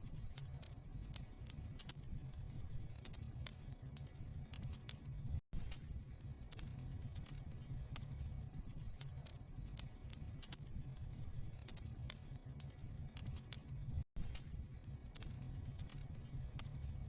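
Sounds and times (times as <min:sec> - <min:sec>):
low steady fire rumble: 0:00.0 - 0:17.0
wood fire crackling and popping: 0:05.6 - 0:13.6.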